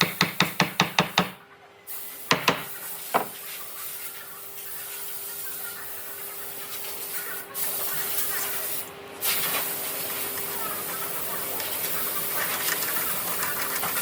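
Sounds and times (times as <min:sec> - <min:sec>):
knocks: 0:00.0 - 0:01.4, 0:02.3 - 0:03.4.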